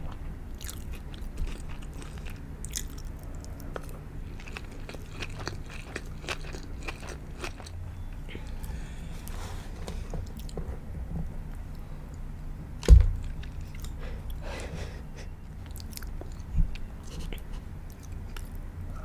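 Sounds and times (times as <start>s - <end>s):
chewing food: 0.0s - 9.4s, 15.4s - 18.6s
steady low hum: 0.0s - 19.0s.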